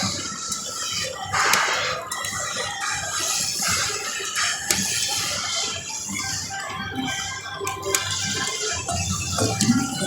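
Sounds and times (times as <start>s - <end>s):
slot machine game music: 8.6s - 10.0s.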